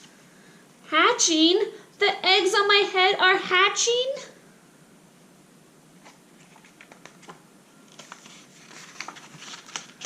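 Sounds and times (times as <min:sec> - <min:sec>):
paper rustling: 0:06.0 - 0:10.0.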